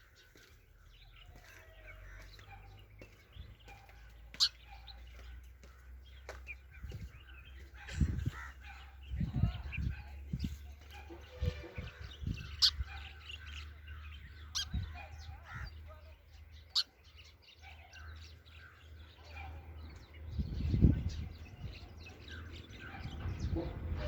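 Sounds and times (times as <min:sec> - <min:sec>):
sparrow chirping: 0:00.0 - 0:24.0.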